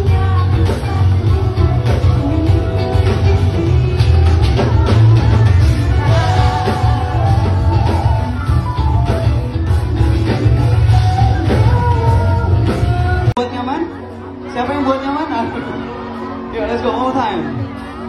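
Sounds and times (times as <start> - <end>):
person singing: 0.0 - 13.4
live rock band playing: 0.0 - 18.0.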